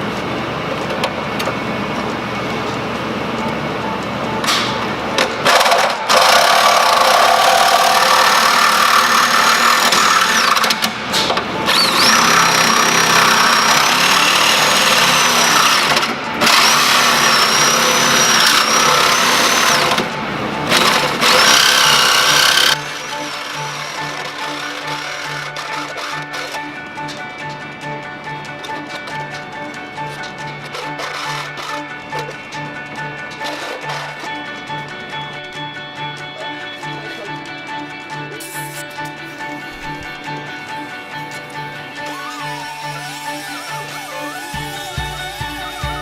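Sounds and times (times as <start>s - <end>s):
power tool cutting steel: 5.4s - 27.2s, 30.5s - 32.4s, 33.4s - 34.4s, 41.4s - 46.0s.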